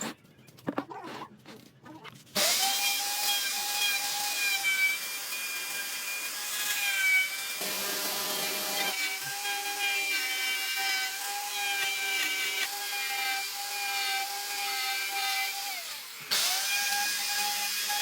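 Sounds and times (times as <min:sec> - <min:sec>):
power tool motor whining: 0:02.4 - 0:18.0.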